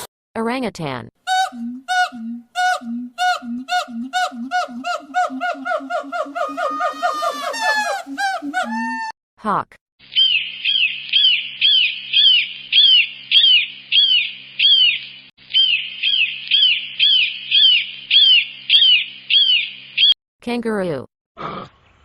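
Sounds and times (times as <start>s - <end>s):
hawk calling: 1.3s - 9.1s.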